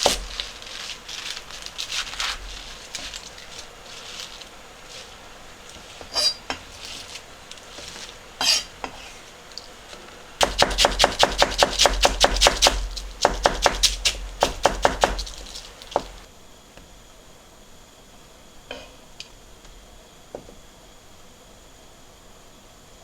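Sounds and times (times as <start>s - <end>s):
knife chopping on cutting board: 0.0s - 0.5s, 10.4s - 16.3s.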